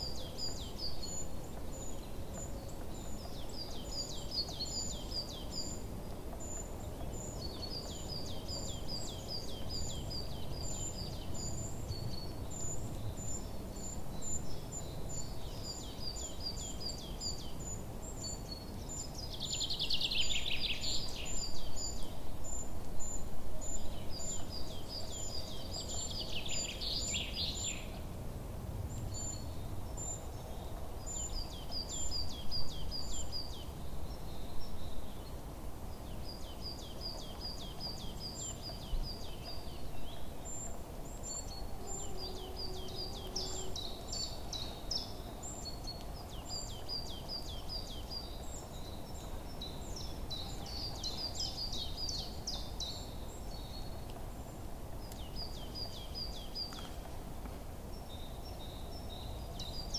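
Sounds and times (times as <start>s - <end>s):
low background hiss: 0.0s - 59.9s
birds chirping: 28.9s - 59.9s.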